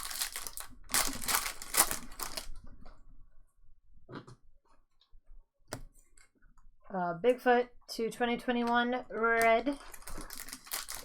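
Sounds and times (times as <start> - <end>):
wrapper tearing and crinkling: 0.0 - 2.6, 9.4 - 11.0.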